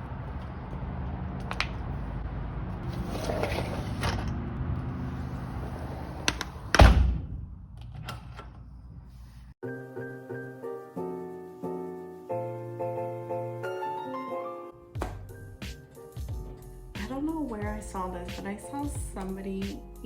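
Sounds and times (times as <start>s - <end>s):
loud heavy thud: 6.7s - 7.7s.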